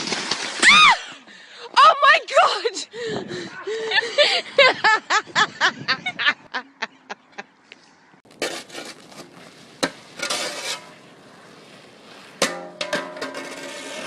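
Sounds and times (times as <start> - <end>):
person laughing: 3.6 - 7.5.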